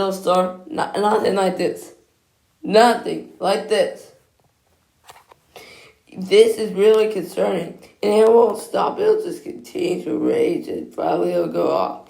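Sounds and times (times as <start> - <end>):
person speaking: 0.0 - 4.3, 5.1 - 12.0
soft breath-like hiss: 5.4 - 6.1.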